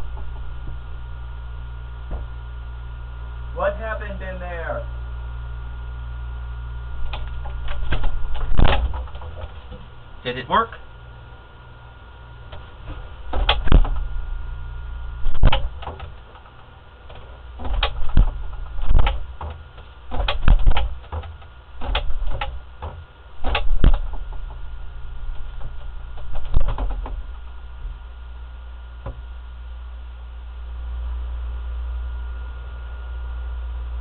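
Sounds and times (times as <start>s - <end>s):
steady low hum: 0.0s - 34.0s
knocks and clunks with thuds: 2.1s - 2.4s, 7.1s - 9.9s, 12.5s - 14.1s, 15.3s - 16.2s, 17.1s - 24.7s, 25.4s - 28.0s, 29.0s - 29.3s.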